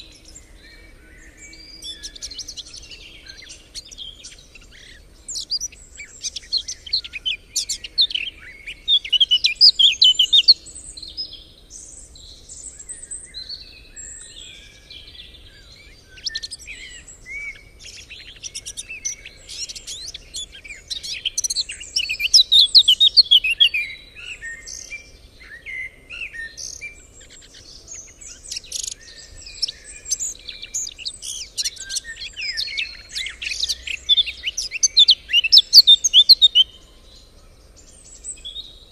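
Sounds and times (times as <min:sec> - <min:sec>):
songbirds chorus: 0:00.0 - 0:38.9.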